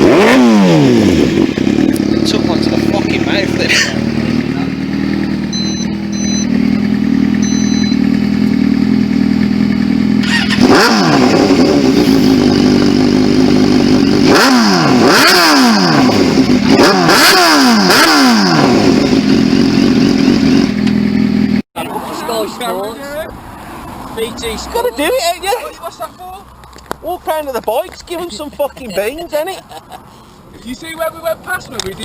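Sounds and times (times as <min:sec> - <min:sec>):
motorcycle engine idling and revving: 0:00.0 - 0:32.0.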